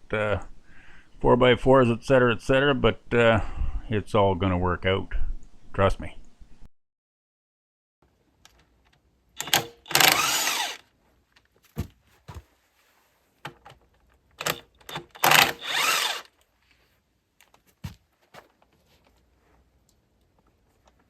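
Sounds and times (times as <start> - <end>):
handheld power tool running: 9.4 - 10.8, 14.4 - 16.3.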